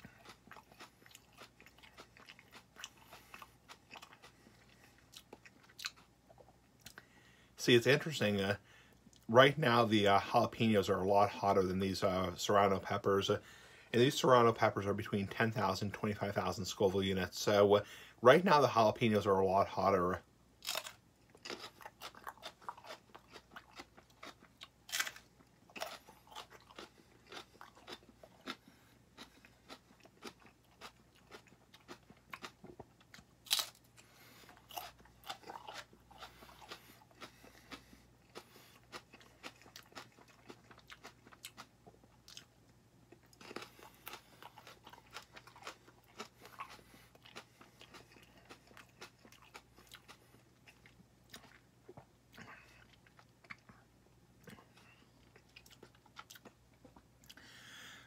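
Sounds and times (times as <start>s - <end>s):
crisp crunching of chewing pepper: 0.0s - 7.1s, 20.6s - 42.5s, 43.1s - 53.8s.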